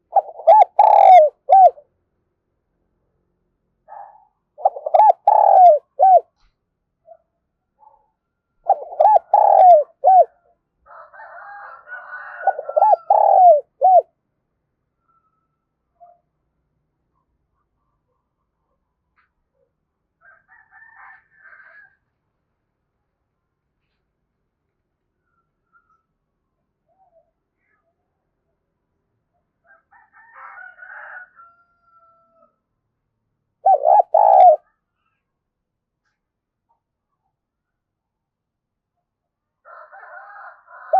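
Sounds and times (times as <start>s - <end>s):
dove cooing: 0.0s - 1.8s, 4.0s - 6.3s, 8.7s - 10.4s, 12.3s - 14.1s, 33.6s - 34.7s
faint scratchy bird calling: 0.0s - 1.8s, 4.6s - 6.5s, 8.6s - 10.3s, 12.4s - 14.0s, 33.6s - 35.3s.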